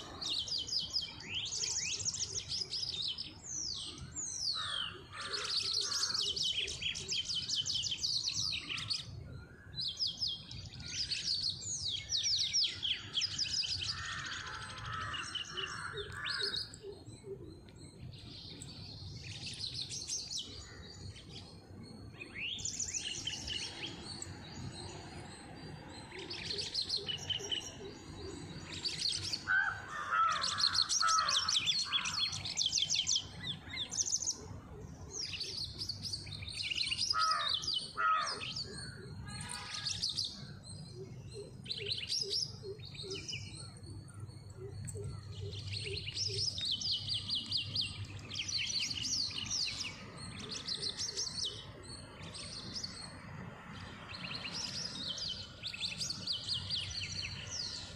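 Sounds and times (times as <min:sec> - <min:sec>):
birds chirping and trilling: 0:00.0 - 0:57.9
lower-pitched bird calls: 0:10.4 - 0:53.2.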